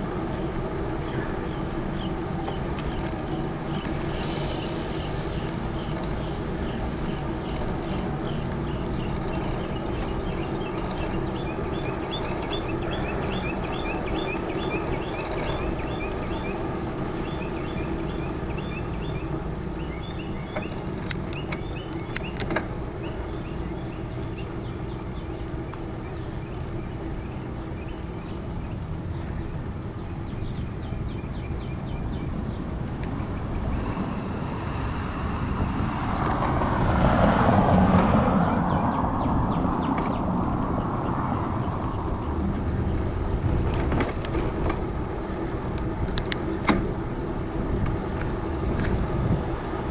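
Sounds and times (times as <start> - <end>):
bicycle tyres rolling on pavement: 0.0 - 49.9.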